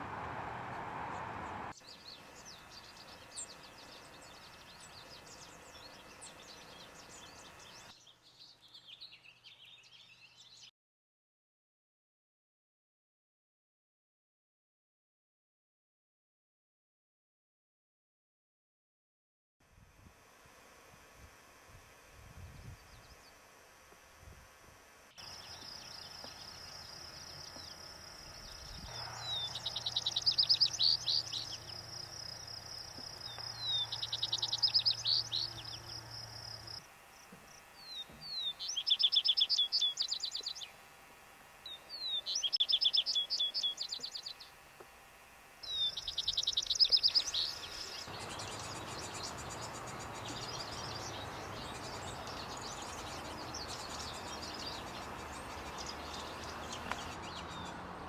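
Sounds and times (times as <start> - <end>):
steady high whine: 0.0 - 8.0, 19.7 - 57.7
faint background chirping: 0.0 - 10.7, 25.2 - 40.9, 41.6 - 44.6, 45.6 - 58.0
songbird singing: 0.0 - 10.7, 25.2 - 40.8, 41.6 - 44.6, 45.6 - 58.0.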